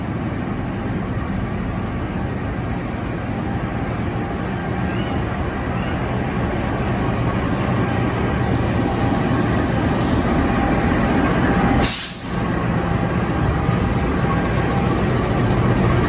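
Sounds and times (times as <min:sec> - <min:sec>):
locomotive engine rumbling: 0:00.0 - 0:16.0
short sharp hiss: 0:11.8 - 0:12.4.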